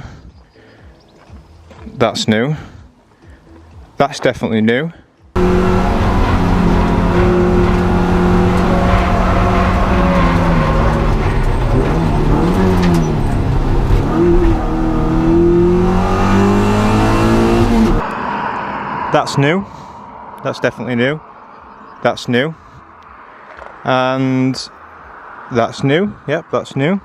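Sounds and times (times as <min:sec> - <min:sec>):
race car engine at high revs: 0:05.4 - 0:18.2.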